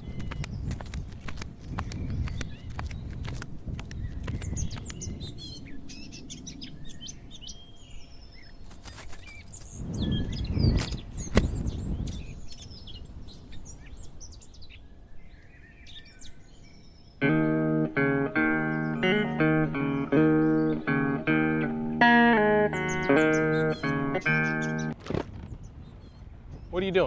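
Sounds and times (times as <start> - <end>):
sharp clicks: 0.0 - 5.0
small birds chirping: 0.0 - 27.0.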